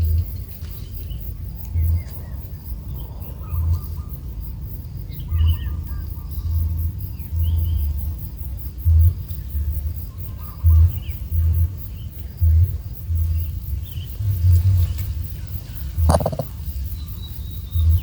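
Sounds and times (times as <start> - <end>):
bird chirps: 16.1 - 16.5.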